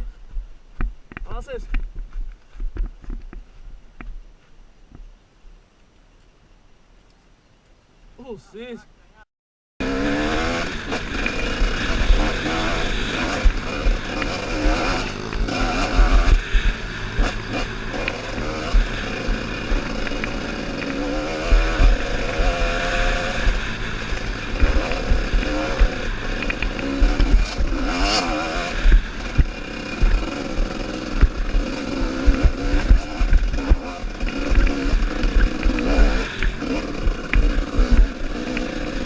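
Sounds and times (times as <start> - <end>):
motorcycle engine revving: 9.8 - 39.0
low rumbling knocks: 28.8 - 38.2.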